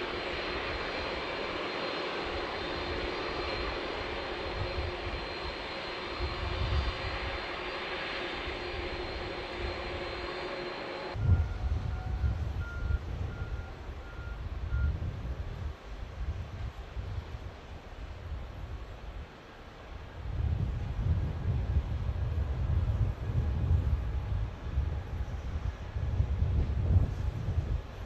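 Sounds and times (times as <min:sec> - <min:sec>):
jet engines roaring: 0:00.0 - 0:14.9.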